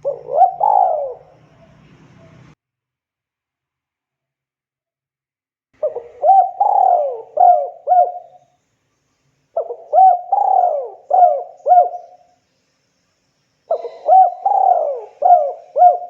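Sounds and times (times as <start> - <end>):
dove cooing: 0.0 - 2.5, 5.8 - 8.4, 9.6 - 12.2, 13.7 - 16.0.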